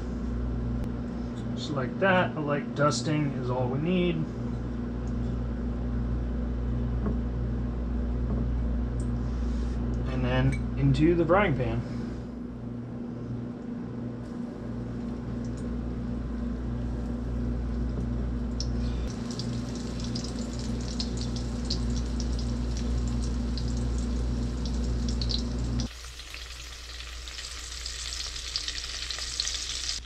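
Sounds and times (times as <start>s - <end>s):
food sizzling in frying pan: 18.8s - 30.0s.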